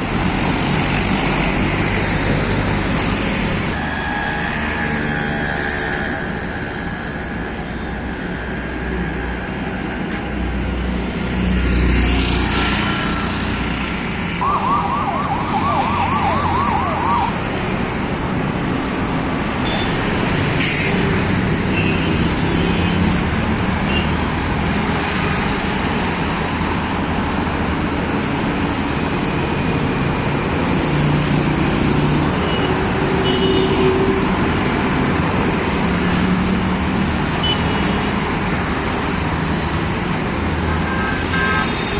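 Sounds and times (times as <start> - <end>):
passing highway traffic: 0.0 - 41.9
warbling siren-like tone: 14.4 - 17.3.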